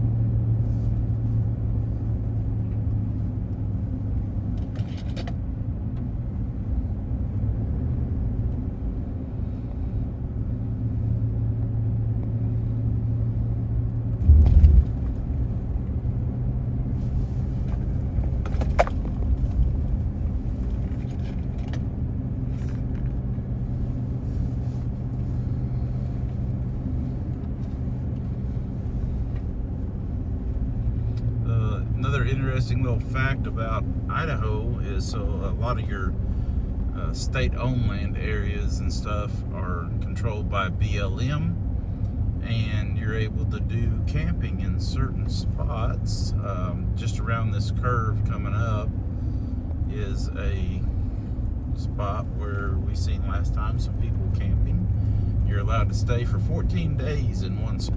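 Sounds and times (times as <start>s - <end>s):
car engine and road noise: 0.0s - 57.9s
loud low thump: 14.2s - 15.2s
light clicks and rattles: 17.6s - 23.3s.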